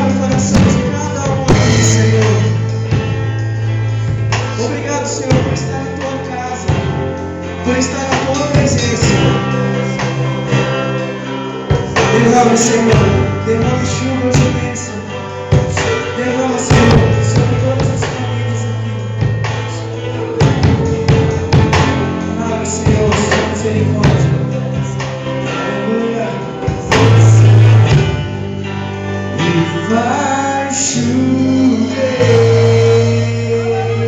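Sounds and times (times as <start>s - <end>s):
gospel band playing chords: 0.0s - 34.0s
drum hits: 0.4s - 3.2s.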